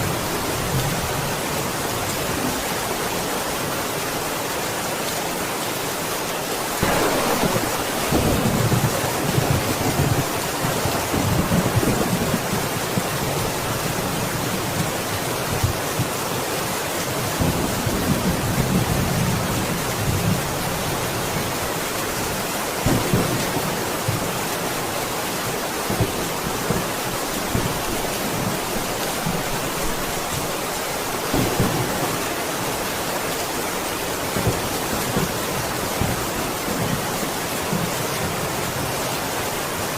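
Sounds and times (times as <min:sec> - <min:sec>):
rain hissing: 0:03.7 - 0:38.8
thunder rumbling: 0:06.8 - 0:13.6, 0:31.2 - 0:33.1.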